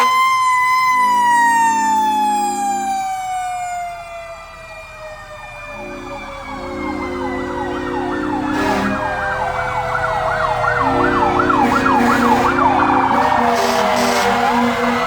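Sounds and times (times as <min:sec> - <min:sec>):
fire truck siren yelping: 0:00.0 - 0:15.0
siren sliding down in pitch: 0:00.0 - 0:15.0
low held horn notes: 0:05.8 - 0:09.6, 0:10.7 - 0:15.0.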